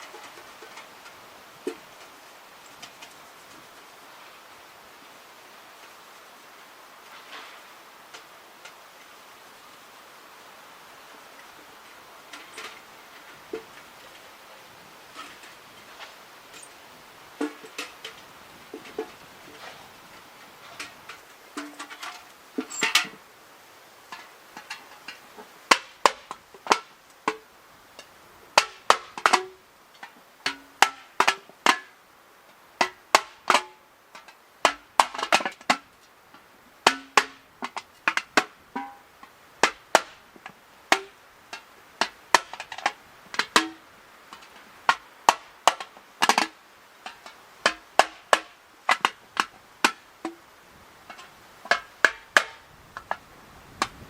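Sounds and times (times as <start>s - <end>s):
hard objects tapping and knocking: 17.4s - 19.9s, 36.8s - 50.4s, 51.1s - 53.2s.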